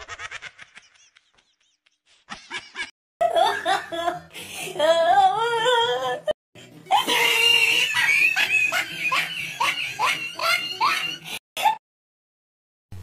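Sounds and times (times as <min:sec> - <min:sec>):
person laughing loudly: 0:00.0 - 0:04.3, 0:07.0 - 0:11.8.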